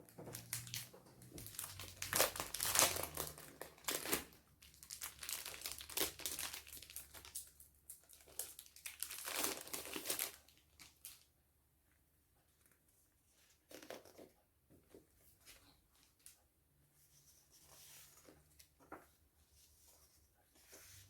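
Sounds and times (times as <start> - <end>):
craft materials crinkling: 0.2 - 11.2.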